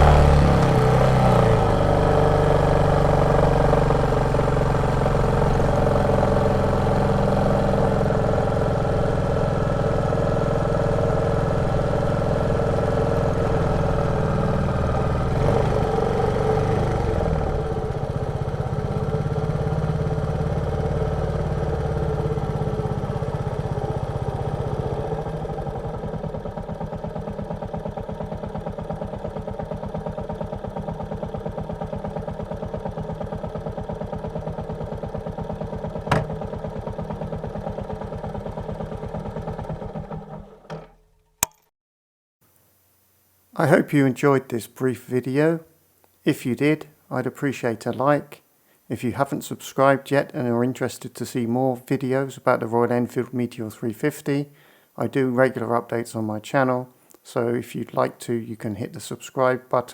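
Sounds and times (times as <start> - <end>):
motorcycle engine thumping: 0.0 - 9.4, 18.3 - 41.6.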